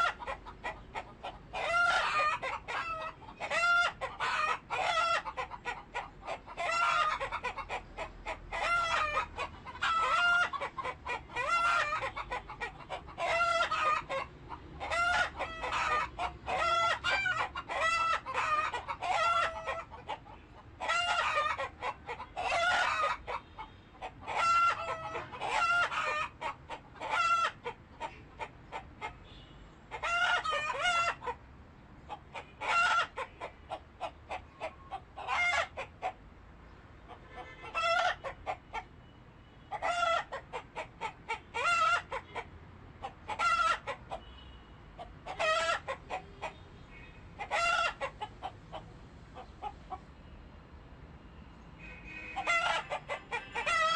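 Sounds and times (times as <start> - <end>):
roosters crowing: 0.0 - 0.5, 1.5 - 19.9, 20.8 - 27.6, 29.9 - 31.3, 37.4 - 38.4, 45.2 - 46.2, 47.4 - 48.2, 51.8 - 53.9
hens clucking: 0.0 - 29.2, 29.9 - 31.4, 32.0 - 36.2, 37.0 - 38.9, 39.7 - 44.3, 45.0 - 46.6, 47.4 - 50.0, 52.3 - 53.9.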